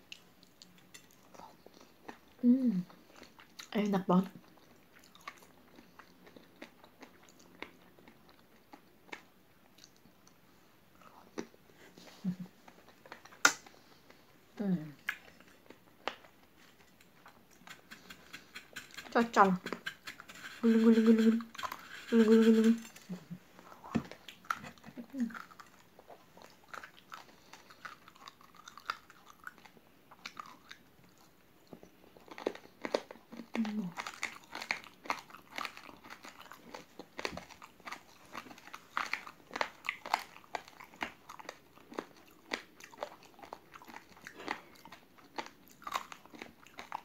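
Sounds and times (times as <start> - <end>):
crisp crunches of chewing rice: 15.0 - 47.0.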